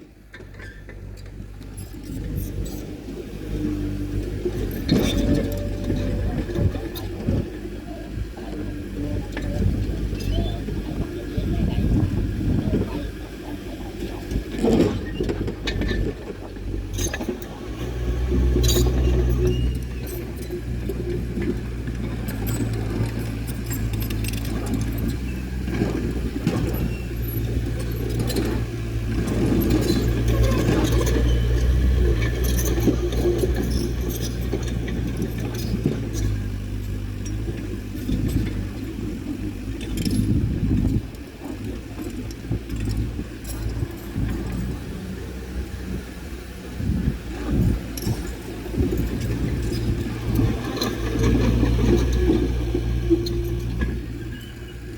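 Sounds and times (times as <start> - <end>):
diesel engine of heavy machinery: 0.0 - 54.9
metallic clinking and clanking: 18.3 - 44.8.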